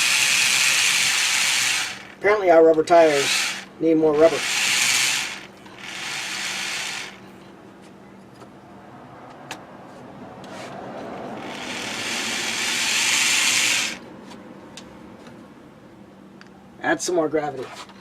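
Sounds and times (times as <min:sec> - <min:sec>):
model train motor whirring: 0:00.0 - 0:02.2, 0:03.1 - 0:07.2, 0:11.4 - 0:14.0.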